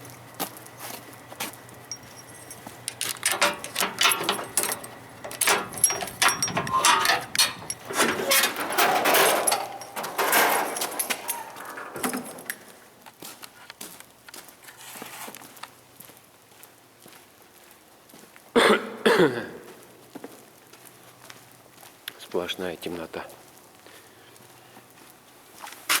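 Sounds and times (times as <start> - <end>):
keys jangling: 1.8 - 12.9
metal lock clicks and clanks: 1.9 - 12.8
door scraping open: 3.0 - 12.7.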